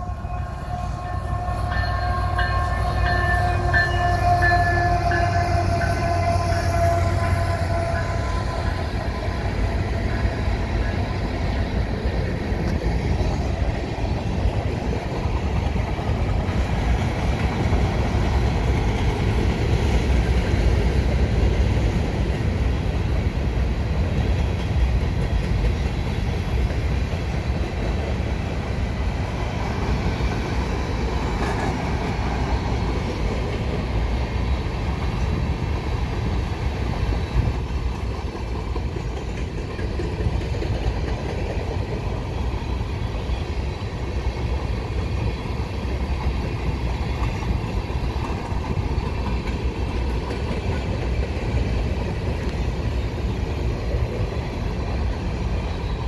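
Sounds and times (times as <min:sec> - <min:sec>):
train horn chord: 0:00.0 - 0:11.2
freight cars rumbling on rails: 0:00.0 - 0:56.0.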